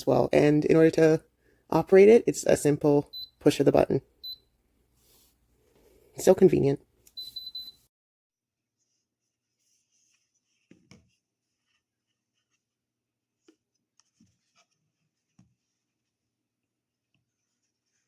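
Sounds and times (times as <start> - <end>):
kettle control panel beep: 3.1 - 3.4, 4.2 - 4.4, 7.1 - 7.8
faint clicks and handling rubs: 13.4 - 18.0.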